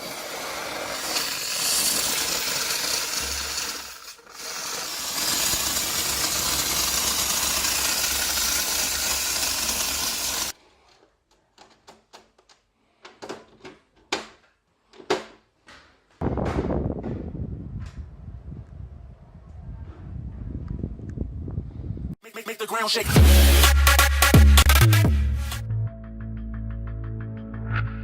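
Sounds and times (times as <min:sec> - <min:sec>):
steam cleaner jet hissing: 0:00.0 - 0:10.6.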